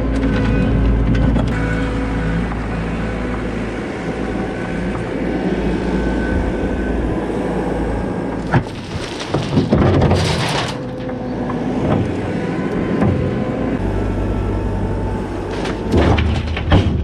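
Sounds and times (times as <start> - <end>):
diesel engine running: 0.0 - 17.0
sharp knocks and clanks: 15.9 - 17.0.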